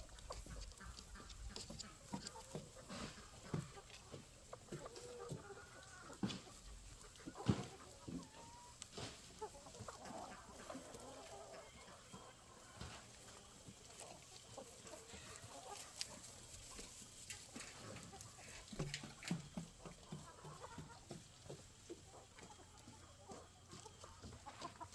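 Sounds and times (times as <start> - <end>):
chickens clucking: 0.0 - 24.9.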